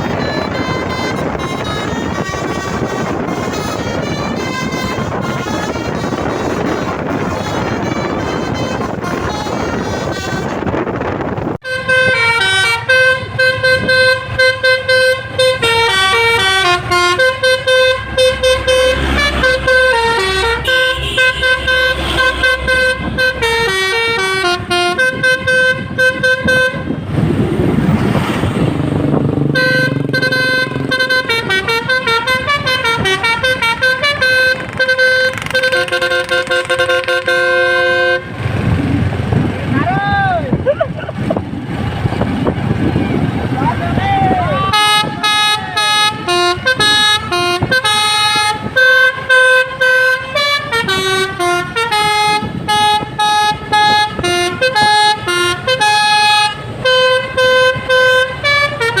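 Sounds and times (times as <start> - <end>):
truck musical air horn: 0.0 - 27.4, 29.1 - 38.8, 44.2 - 59.0
low rumbling noise: 16.2 - 55.7.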